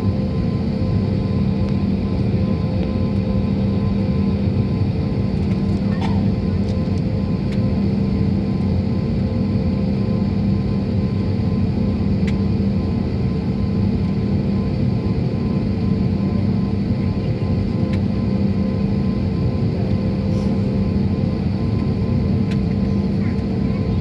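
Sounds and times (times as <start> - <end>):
jet engines droning in cabin: 0.0 - 24.0.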